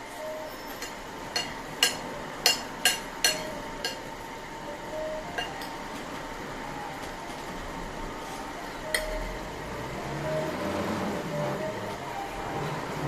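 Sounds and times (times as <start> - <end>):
faint steady hum: 0.0 - 13.0
spoon clinking against plate: 0.5 - 4.1, 5.3 - 5.8.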